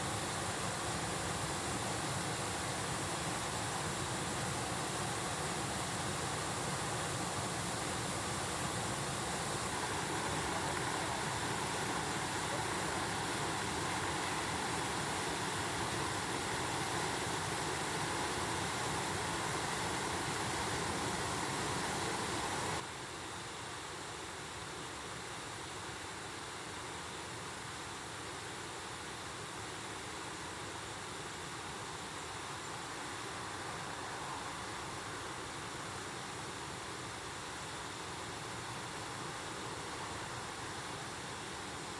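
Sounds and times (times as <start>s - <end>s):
stream water rushing: 0.0s - 41.9s.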